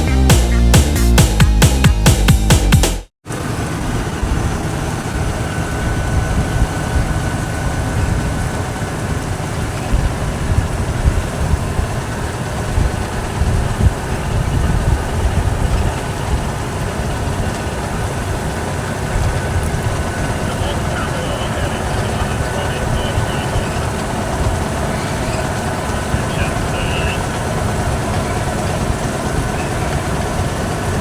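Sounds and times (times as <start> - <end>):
tractor engine deep rumble: 3.4 - 31.0.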